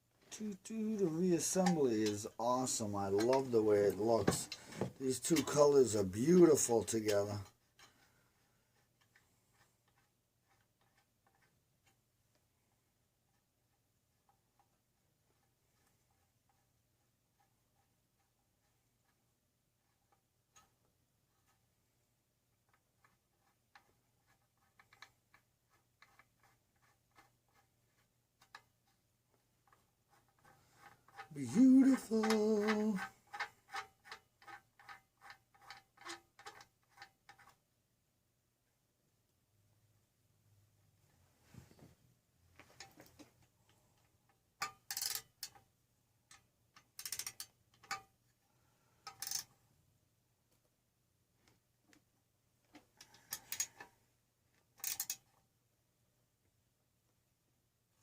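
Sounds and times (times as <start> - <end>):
hand tools clinking: 1.0 - 5.7, 30.8 - 35.0.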